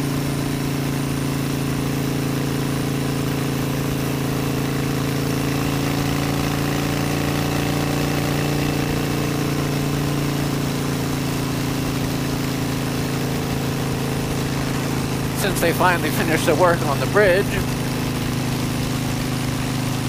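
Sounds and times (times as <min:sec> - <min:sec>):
motorcycle engine cruising: 0:00.0 - 0:20.0
steady rush of noise: 0:13.3 - 0:20.0.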